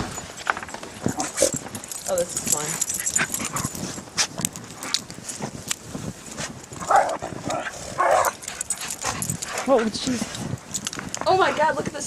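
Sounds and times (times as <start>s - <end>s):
crunching and scuffling in snow: 0.0s - 11.8s
dogs barking: 6.8s - 10.0s.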